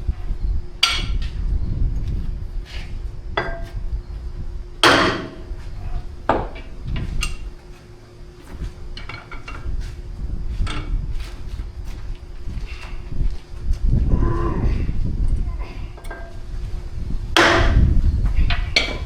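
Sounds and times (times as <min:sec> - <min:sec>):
hammer striking steel: 0:00.8 - 0:01.2, 0:04.8 - 0:05.6, 0:17.4 - 0:17.9.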